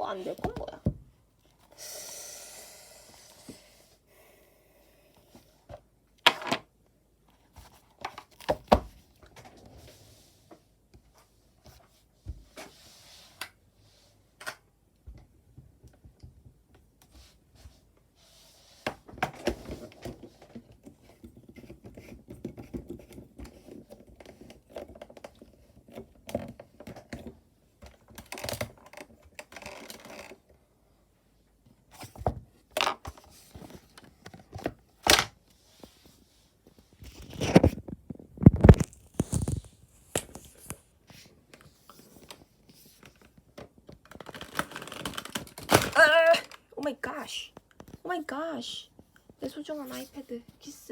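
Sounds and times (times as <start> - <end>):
rustling and scraping: 31.7 - 45.9.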